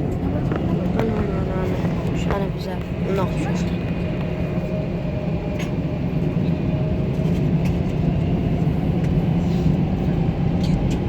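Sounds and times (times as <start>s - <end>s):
airliner cabin engine drone: 0.0s - 11.0s.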